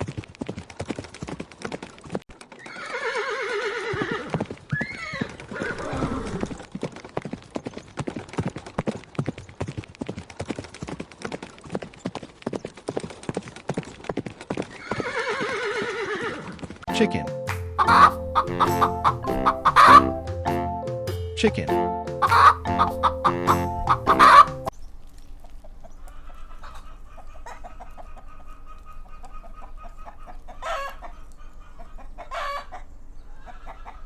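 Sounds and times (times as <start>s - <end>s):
horse hooves clip-clopping: 0.0s - 3.0s, 3.8s - 16.8s
horse whinnying: 2.6s - 6.7s, 14.7s - 16.6s.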